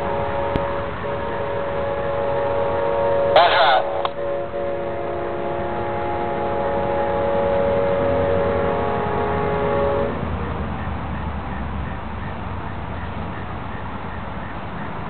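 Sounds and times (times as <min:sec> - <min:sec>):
locomotive horn chord: 0:00.0 - 0:10.7
passing train rumble: 0:00.0 - 0:15.0.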